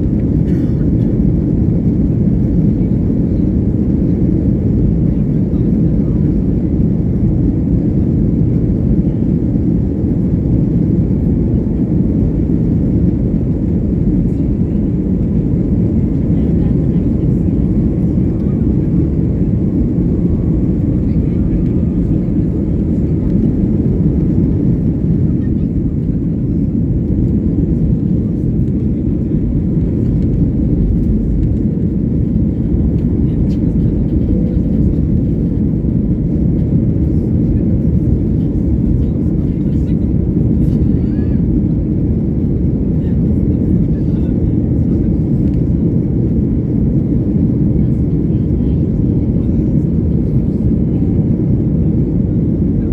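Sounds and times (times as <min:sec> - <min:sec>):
airplane engine rumble: 0:00.0 - 0:52.9.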